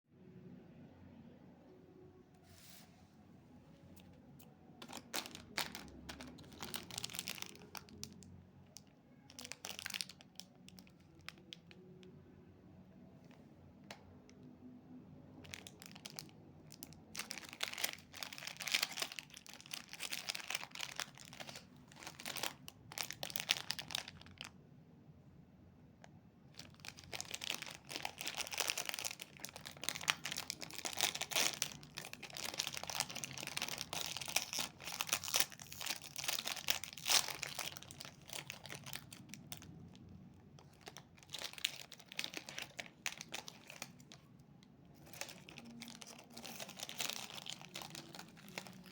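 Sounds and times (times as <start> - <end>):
snack packaging crinkling: 4.8 - 11.8, 15.4 - 24.5, 26.5 - 48.9.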